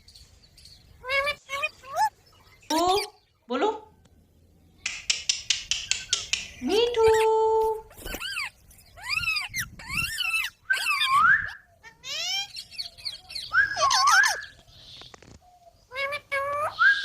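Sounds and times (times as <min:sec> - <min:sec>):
parrot squawking: 0:01.0 - 0:03.2, 0:07.9 - 0:14.6
parrot wavering call: 0:08.1 - 0:14.5.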